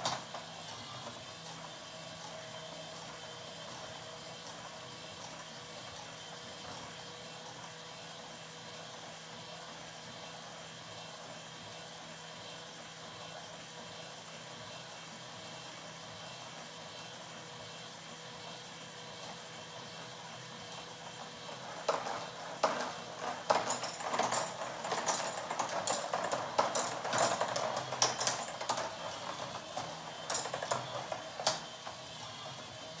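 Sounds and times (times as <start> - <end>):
marbles clattering through plastic run: 21.6 - 31.6.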